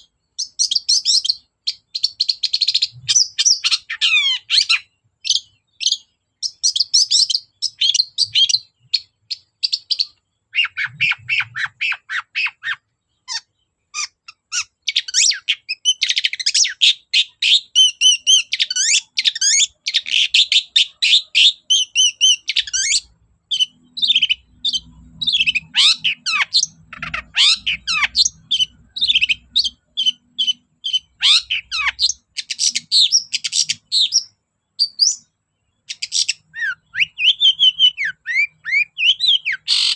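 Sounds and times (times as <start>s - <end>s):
bird singing chirps and squawks: 0.0s - 39.9s.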